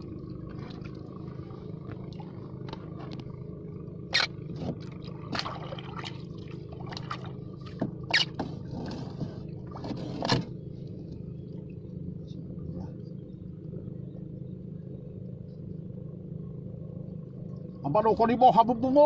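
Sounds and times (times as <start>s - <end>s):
low motor hum: 0.0s - 19.0s.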